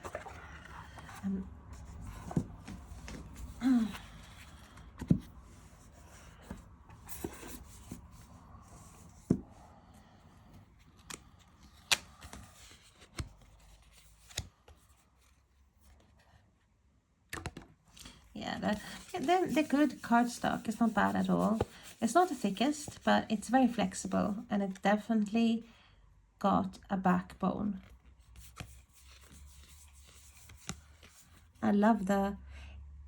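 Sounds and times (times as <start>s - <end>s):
card stock rustling: 0.0s - 5.3s, 18.6s - 24.0s
cards clicking and tapping: 11.0s - 12.4s.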